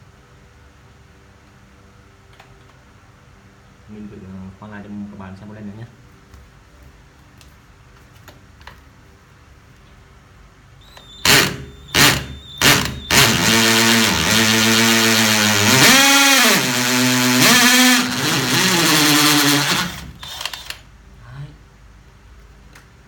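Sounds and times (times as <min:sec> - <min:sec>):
drill drilling into concrete: 0:10.8 - 0:20.8.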